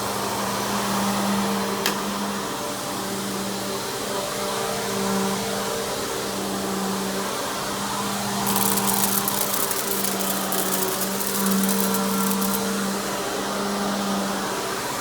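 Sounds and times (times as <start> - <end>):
vacuum cleaner motor hum: 8.4 - 12.8
rapid high crackle: 8.4 - 12.9.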